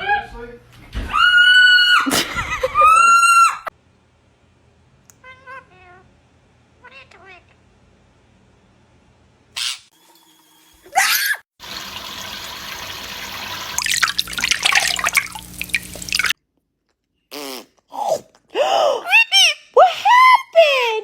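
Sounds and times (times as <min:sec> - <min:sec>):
running water splashing: 0:10.0 - 0:16.4.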